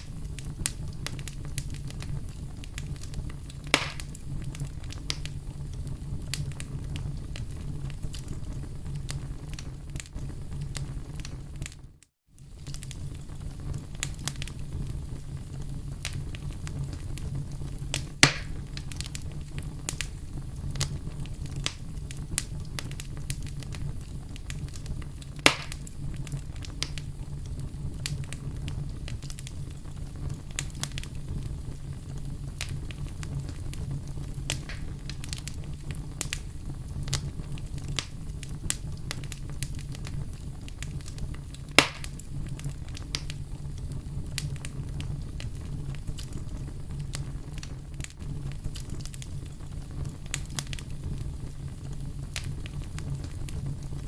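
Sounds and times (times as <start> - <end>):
wood fire crackling: 0.0 - 54.0
loud pops of splitting wood: 3.7 - 4.2, 18.2 - 18.6, 25.4 - 25.9, 34.6 - 34.9, 41.8 - 42.2.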